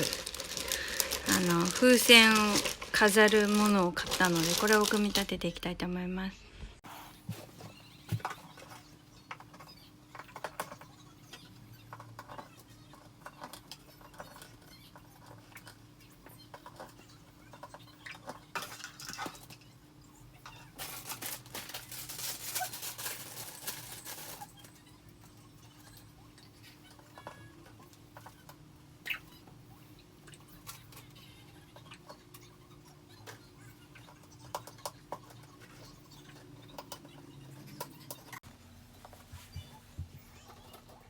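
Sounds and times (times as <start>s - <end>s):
plastic parts rustling and clicking: 0.0s - 5.5s, 7.4s - 19.7s, 20.4s - 24.8s.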